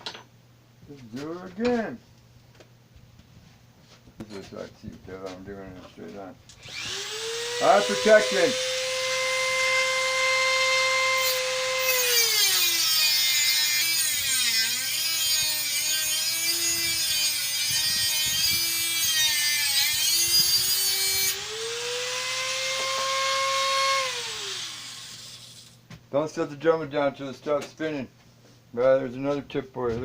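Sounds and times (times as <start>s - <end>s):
cut-off wheel grinding metal: 6.6s - 25.8s
rotary tool motor whine: 6.6s - 25.8s.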